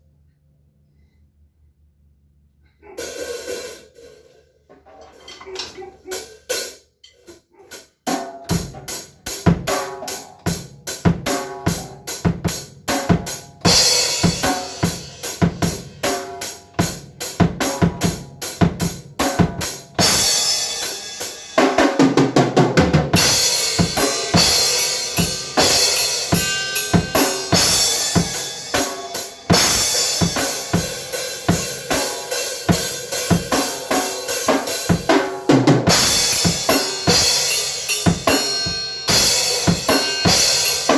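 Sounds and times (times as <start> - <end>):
kick and snare drum beat: 8.1 - 40.9
cymbals: 13.0 - 17.0, 19.2 - 21.8, 23.1 - 35.1, 35.9 - 40.9.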